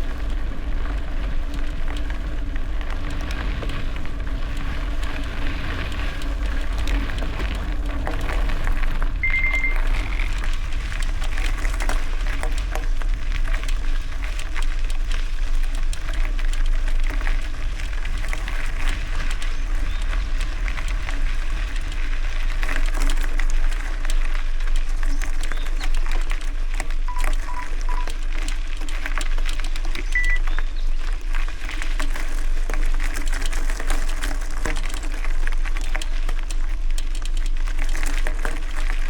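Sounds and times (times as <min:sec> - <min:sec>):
bicycle tyres on gravel: 0:00.0 - 0:39.0
wind rumble on microphone: 0:00.0 - 0:39.0
short high electronic beep: 0:09.2 - 0:09.8.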